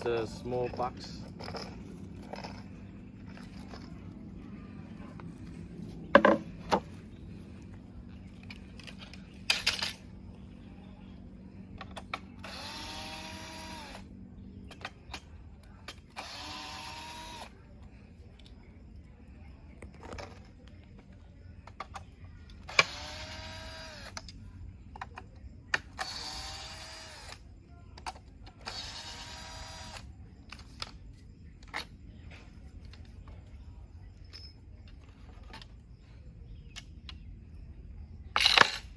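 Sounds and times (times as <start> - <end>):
cordless drill whining: 12.4 - 14.1, 22.8 - 24.1, 28.7 - 30.1.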